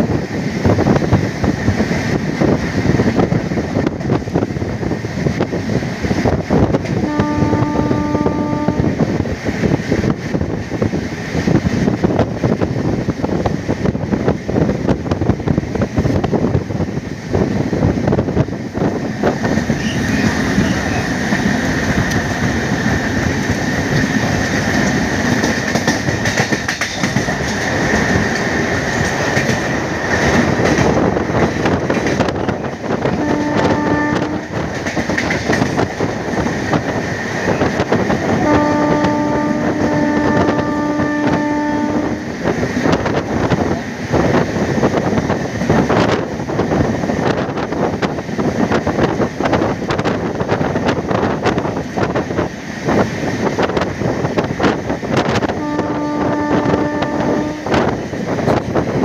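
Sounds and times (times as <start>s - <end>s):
wheels rumbling over rails: 0.0s - 59.0s
wind: 0.0s - 59.0s
locomotive horn: 7.0s - 9.0s, 33.0s - 34.7s, 38.3s - 42.3s, 55.4s - 57.9s.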